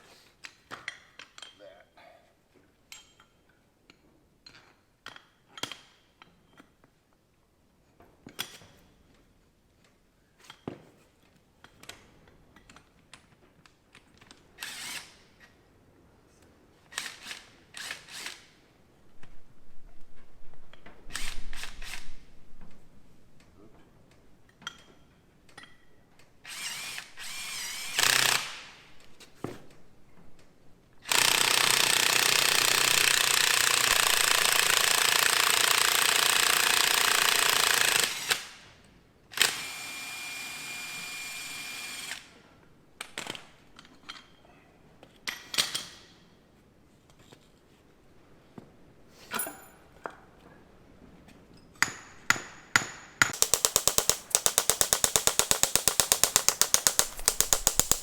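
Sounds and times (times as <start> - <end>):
clicks and knocks of metal tools: 2.9 - 6.8, 53.2 - 58.0
impact wrench running: 53.4 - 58.0.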